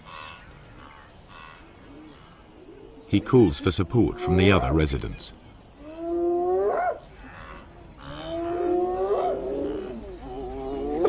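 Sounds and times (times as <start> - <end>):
hyena whooping: 5.8 - 11.0.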